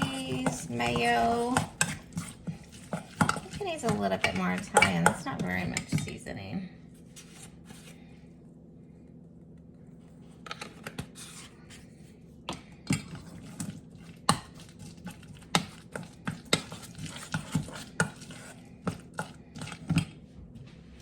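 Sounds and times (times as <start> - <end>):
utensil stirring thick sauce: 0.0 - 6.1, 12.6 - 20.2
utensil clacking against bowl: 0.0 - 6.2, 12.5 - 20.2.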